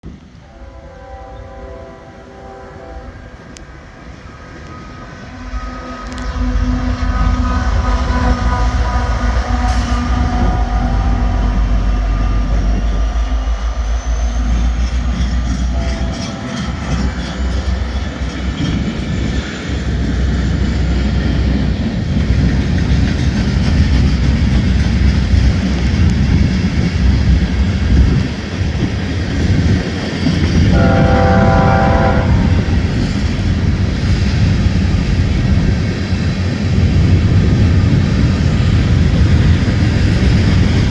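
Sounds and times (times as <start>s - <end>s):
rail cars clattering: 0.0s - 40.9s
locomotive horn chord: 0.4s - 13.0s, 30.7s - 33.0s
wind buffeting microphone: 3.3s - 40.9s.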